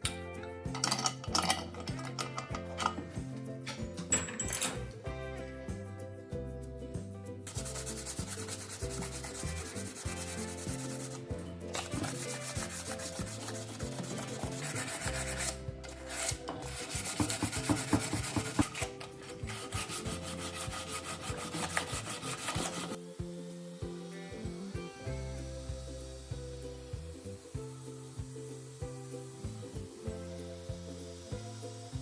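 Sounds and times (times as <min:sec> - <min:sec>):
background music with bass: 0:00.0 - 0:32.0
rubbing strokes on metal: 0:07.5 - 0:23.0.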